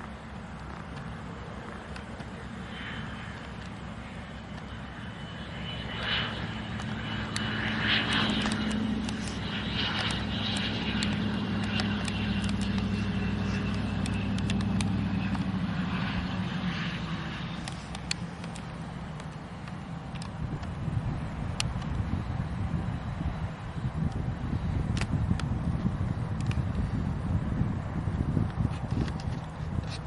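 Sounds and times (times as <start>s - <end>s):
airplane engines droning: 0.0s - 30.0s
high engine whine: 0.0s - 30.0s.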